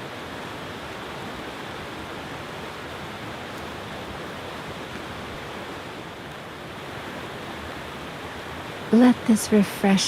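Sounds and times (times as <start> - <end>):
stream rushing over stones: 0.0 - 10.0.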